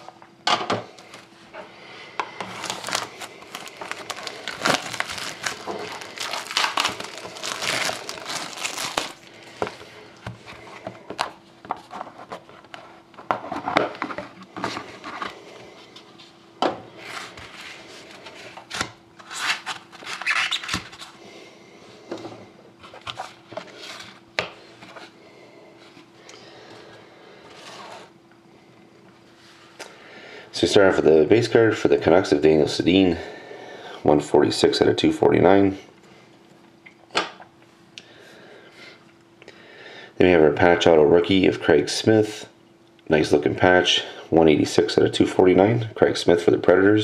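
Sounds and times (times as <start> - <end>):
faint steady hum: 0.0 - 47.0
plastic wrapping crinkling and tearing: 2.5 - 9.8, 18.7 - 21.1
cards rustling and clicking: 2.5 - 9.9.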